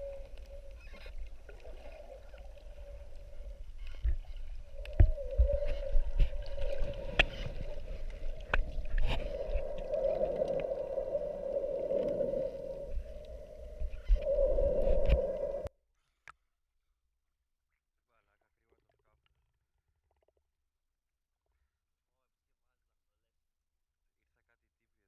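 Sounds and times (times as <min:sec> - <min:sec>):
underwater hum: 0:00.0 - 0:15.7
water gurgling: 0:00.0 - 0:15.7.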